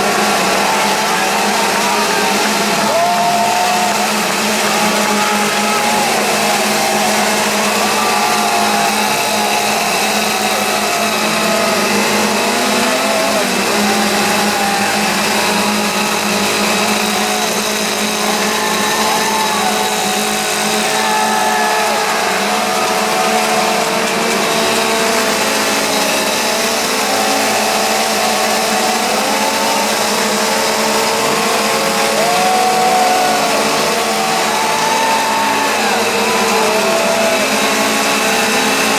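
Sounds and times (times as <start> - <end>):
wavering engine-like drone: 0.0 - 38.9.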